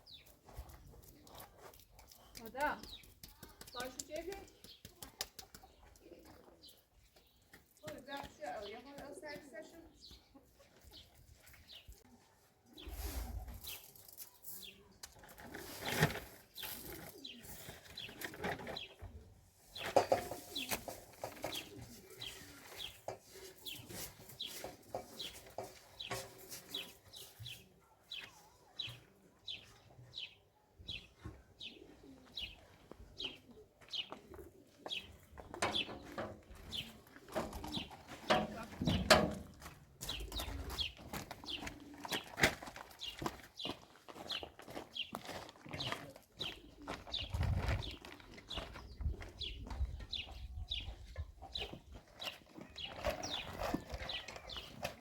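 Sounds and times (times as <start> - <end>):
birds chirping: 0.0 - 12.0, 16.5 - 55.0.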